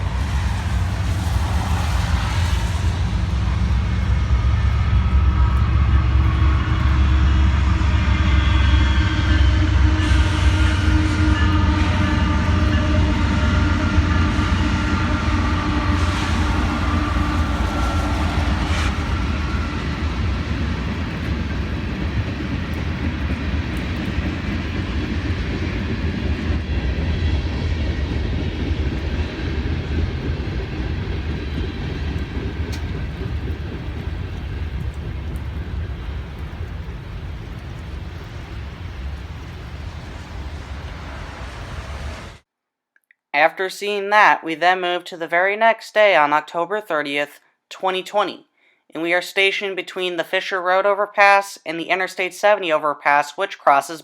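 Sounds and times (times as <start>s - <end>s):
freight train rumbling on rails: 0.0s - 42.4s.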